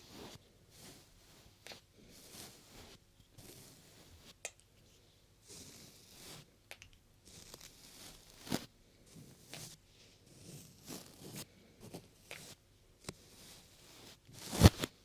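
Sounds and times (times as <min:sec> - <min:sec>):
rubbing on microphone: 0:00.0 - 0:06.5, 0:07.3 - 0:12.6.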